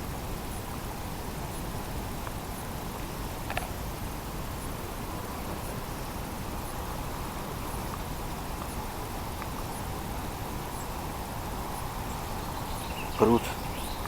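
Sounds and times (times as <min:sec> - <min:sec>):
outdoor background hiss: 0:00.0 - 0:14.0
faint high ticks: 0:07.6 - 0:09.8.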